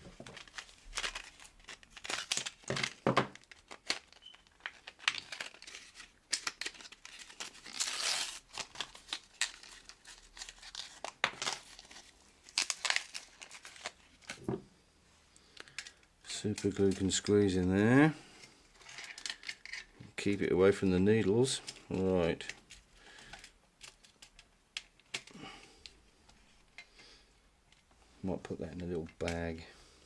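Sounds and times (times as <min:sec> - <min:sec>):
glue packet crinkling and tearing: 0:00.0 - 0:14.4, 0:18.7 - 0:19.9.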